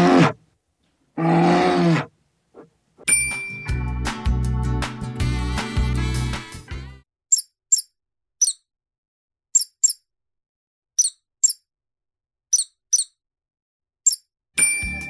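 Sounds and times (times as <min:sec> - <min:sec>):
mouse squeaking: 0:07.3 - 0:08.7, 0:09.5 - 0:10.1, 0:11.0 - 0:11.6, 0:12.5 - 0:13.2, 0:14.0 - 0:14.3.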